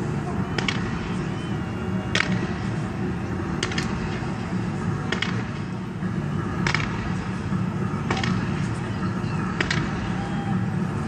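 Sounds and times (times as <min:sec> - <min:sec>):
low rumbling noise: 0:00.0 - 0:11.0.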